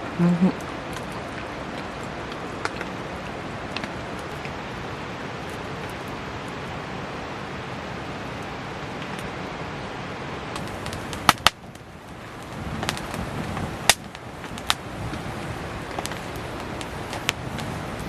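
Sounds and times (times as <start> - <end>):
campfire popping: 0.0 - 18.0
heavy rain hiss: 0.0 - 18.0.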